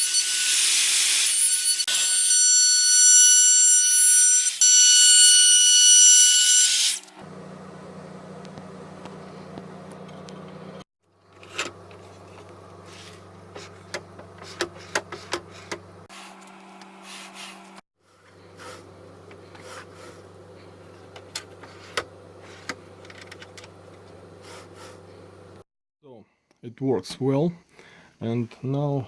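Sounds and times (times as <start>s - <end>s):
low mechanical hum: 7.2s - 25.6s.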